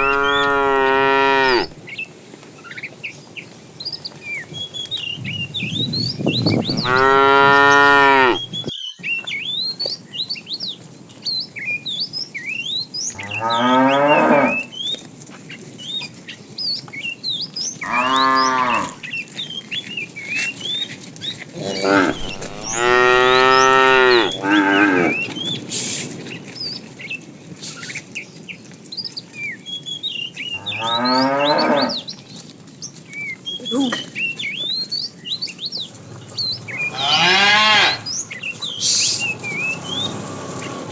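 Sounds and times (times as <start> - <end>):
cattle mooing: 0.0 - 1.8, 6.6 - 8.7, 13.2 - 14.7, 17.8 - 19.0, 21.5 - 25.4, 30.6 - 32.0, 36.0 - 40.9.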